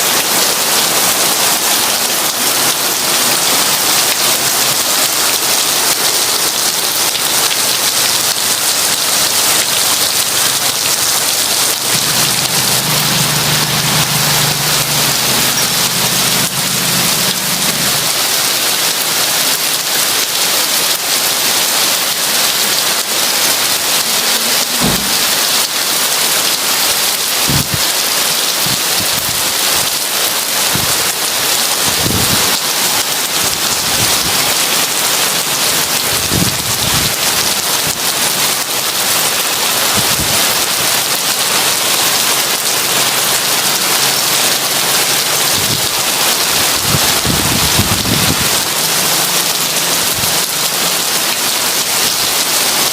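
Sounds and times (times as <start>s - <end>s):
heavy rain falling: 0.0s - 52.9s.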